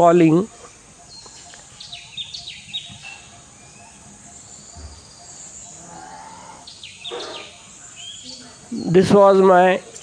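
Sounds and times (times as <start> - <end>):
high-pitched insect drone: 0.5 - 8.3
bird whistled calls: 0.6 - 8.5.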